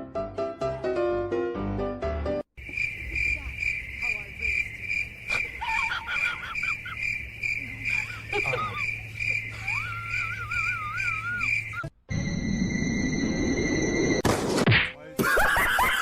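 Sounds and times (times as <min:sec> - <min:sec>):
insect chirping: 0:02.5 - 0:14.2
short wavering calls: 0:02.8 - 0:11.9.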